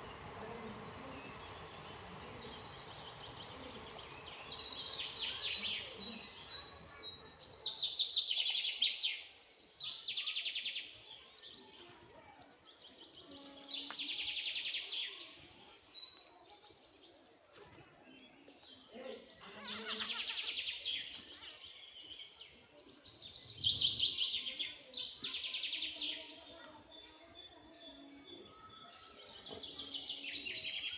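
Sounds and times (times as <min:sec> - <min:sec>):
bird singing trilled phrase: 0:00.8 - 0:11.0.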